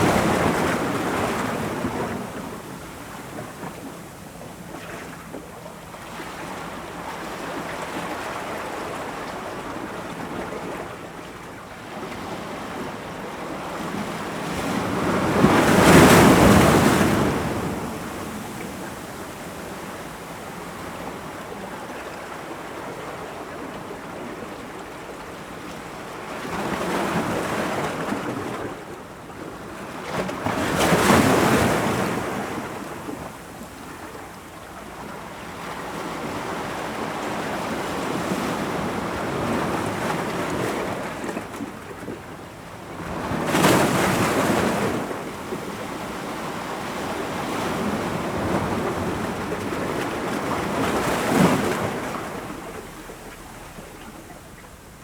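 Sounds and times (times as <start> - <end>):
ocean waves breaking on rocks: 13.6 - 18.9, 35.8 - 55.0.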